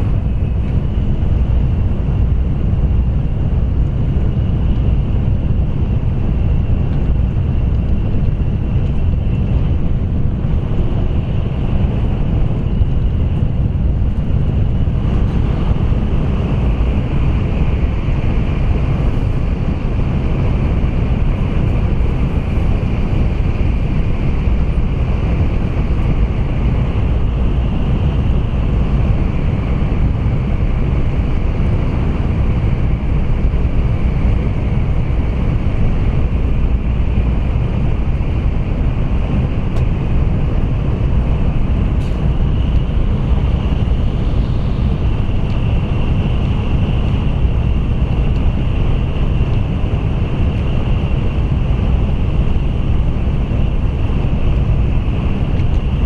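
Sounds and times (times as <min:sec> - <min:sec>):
train running in tunnel: 0:00.0 - 0:56.0.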